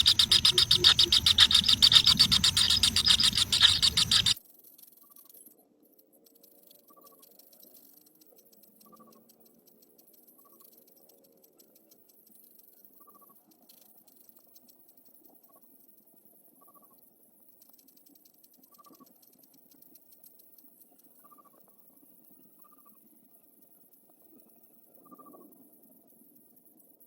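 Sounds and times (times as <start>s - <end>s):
high bird calls: 0.0s - 4.4s
light ticking and scratching: 0.0s - 4.4s.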